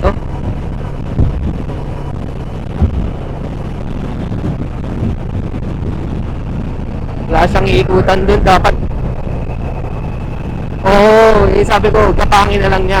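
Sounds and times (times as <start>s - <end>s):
motorcycle engine running: 0.0s - 7.3s
low thumps: 0.0s - 10.8s
wind rushing over helmet microphone: 0.0s - 13.0s.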